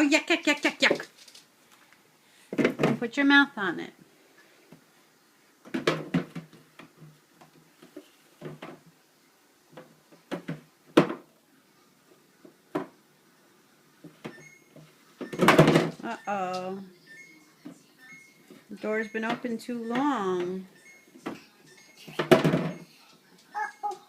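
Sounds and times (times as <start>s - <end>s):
bottles knocking on fridge shelves: 5.7s - 6.5s, 10.3s - 11.3s, 15.2s - 16.0s, 22.2s - 22.8s
refrigerator door alarm beeping: 14.3s - 17.4s, 19.0s - 22.0s.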